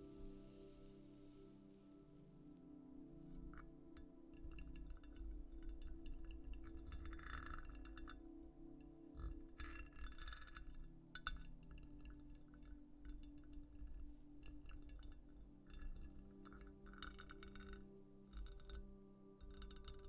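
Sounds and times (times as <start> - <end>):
ambient music: 0.0 - 20.0
small clicks: 9.2 - 20.0.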